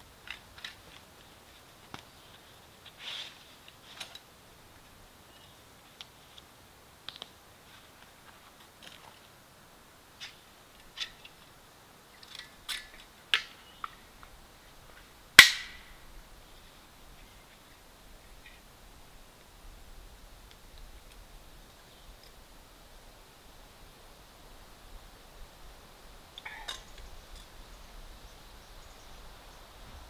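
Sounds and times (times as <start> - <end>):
camping gear clicking and rustling: 0.2 - 4.9
sharp snap: 15.4 - 16.0.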